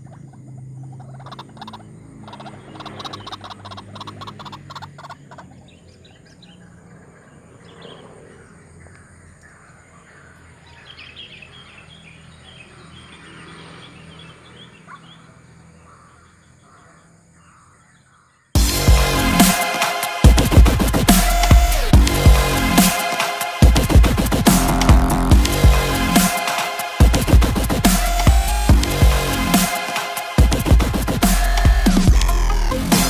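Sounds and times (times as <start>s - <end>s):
birds chirping: 0.0s - 33.0s
low hum: 18.6s - 33.0s.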